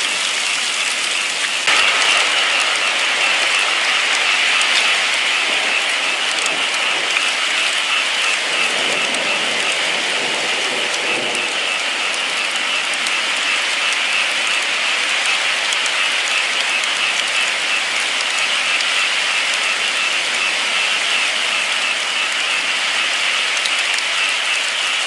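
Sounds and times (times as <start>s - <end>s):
heavy rain pattering: 0.0s - 25.0s.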